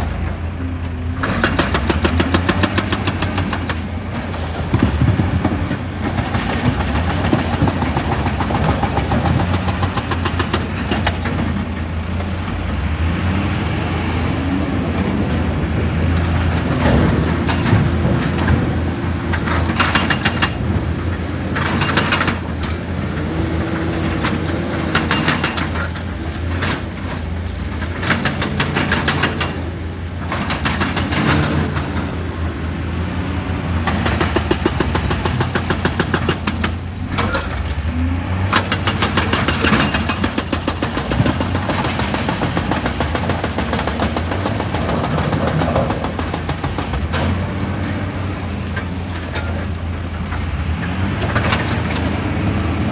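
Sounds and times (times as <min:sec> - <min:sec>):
excavator engine running: 0:00.0 - 0:52.9
rapid hammering on rock: 0:33.8 - 0:36.8, 0:38.7 - 0:47.4.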